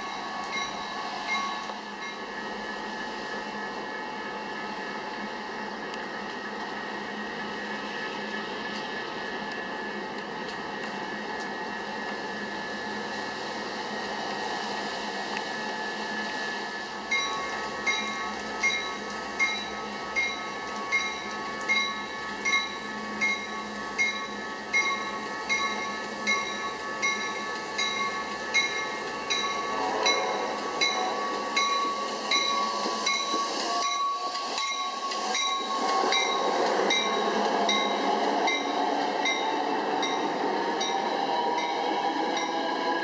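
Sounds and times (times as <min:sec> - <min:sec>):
freight train passing: 0:00.0 - 0:43.0.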